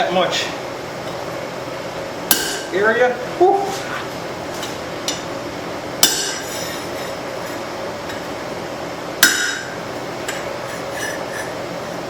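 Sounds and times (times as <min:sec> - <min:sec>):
steady background hiss: 0:00.0 - 0:12.0
hammer striking hot steel: 0:02.3 - 0:02.8, 0:06.0 - 0:06.9, 0:09.2 - 0:10.4.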